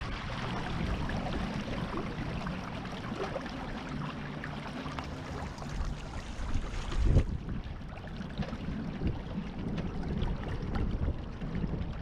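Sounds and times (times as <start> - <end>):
water splashing along boat hull: 0.0 - 12.0.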